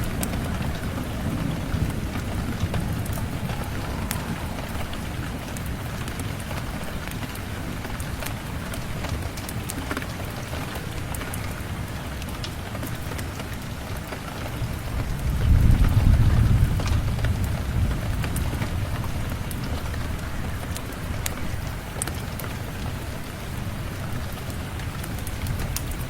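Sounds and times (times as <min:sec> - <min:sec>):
thunder rumble: 0:00.0 - 0:12.2, 0:14.4 - 0:22.0
steady rain falling: 0:00.0 - 0:26.0.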